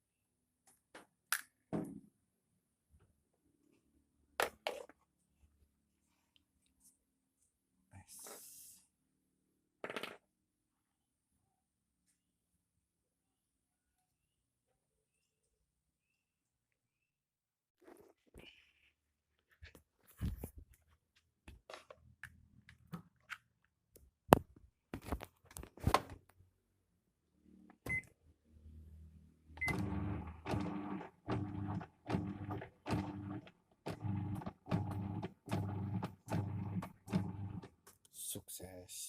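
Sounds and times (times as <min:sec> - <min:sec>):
washing machine motor humming: 0:29.6 - 0:37.8.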